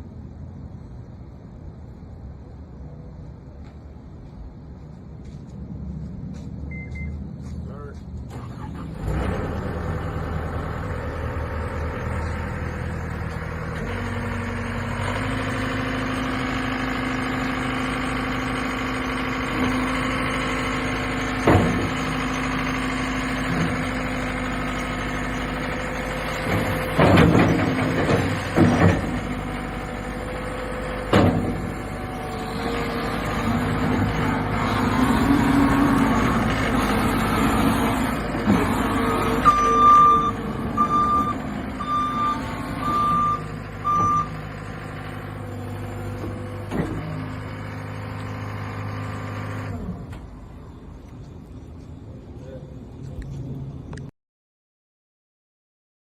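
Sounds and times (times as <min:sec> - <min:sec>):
diesel engine running: 0:00.0 - 0:54.1
machine knocks and clunks: 0:21.4 - 0:22.1, 0:26.4 - 0:29.3, 0:31.0 - 0:31.8.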